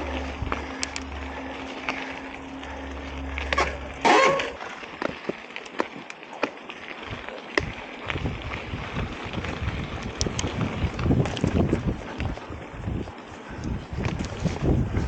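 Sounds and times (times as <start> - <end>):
wind buffeting microphone: 0.0 - 4.0, 7.0 - 15.0
sharp clicks and rattles: 0.0 - 6.5, 9.3 - 12.4
bicycle tyres on dirt trail: 0.0 - 15.0.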